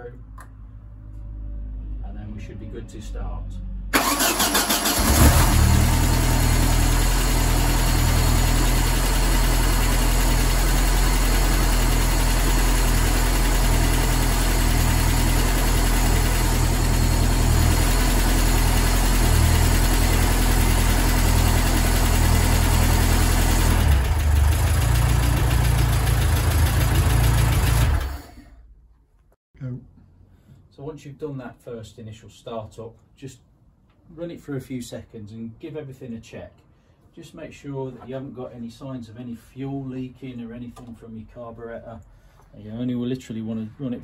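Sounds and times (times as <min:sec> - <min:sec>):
car engine running: 0:05.0 - 0:28.4.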